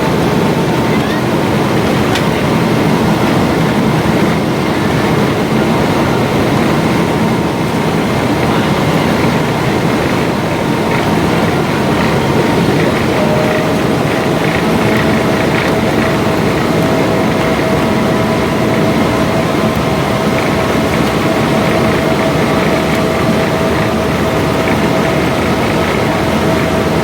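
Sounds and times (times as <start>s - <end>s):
faint steady whine: 0.0s - 27.0s
jet engine cabin noise: 0.0s - 27.0s.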